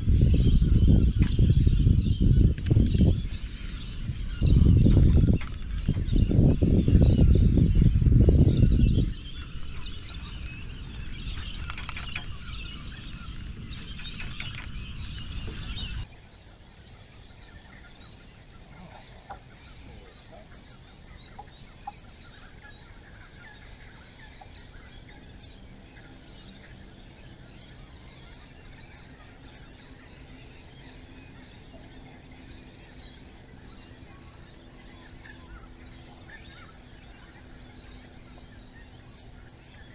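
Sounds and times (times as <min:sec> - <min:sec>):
birds calling: 0:00.0 - 0:39.9
low outdoor haze: 0:00.0 - 0:39.9.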